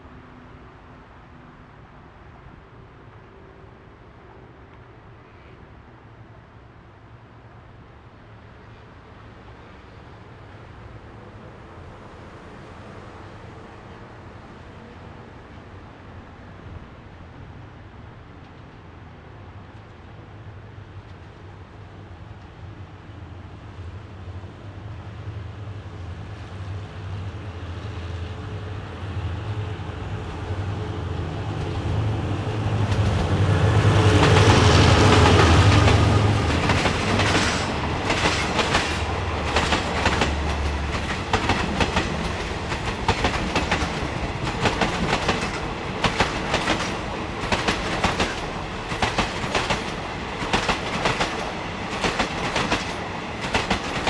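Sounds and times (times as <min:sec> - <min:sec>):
locomotive engine hum: 0:26.8 - 0:54.0
train wheels clickety-clack: 0:31.2 - 0:54.0.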